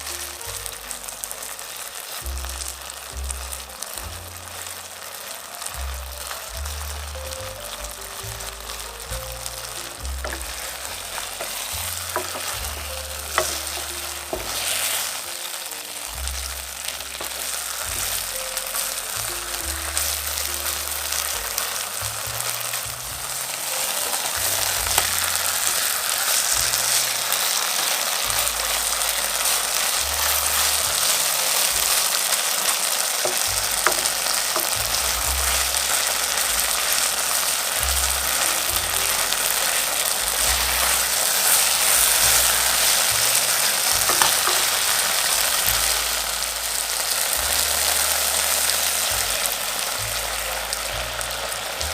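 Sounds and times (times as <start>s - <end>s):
steak sizzling in a pan: 0.0s - 51.9s
utensil clicking against pan: 10.2s - 14.7s, 29.4s - 45.9s.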